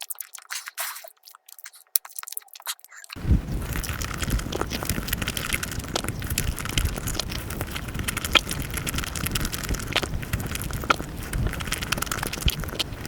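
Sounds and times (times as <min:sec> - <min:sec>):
sped-up chewing crackle: 0:00.0 - 0:13.0
low rumble: 0:03.2 - 0:13.0.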